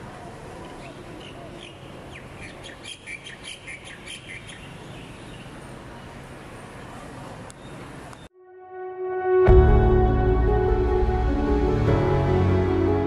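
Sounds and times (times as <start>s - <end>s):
bird chirping: 0.6s - 5.7s.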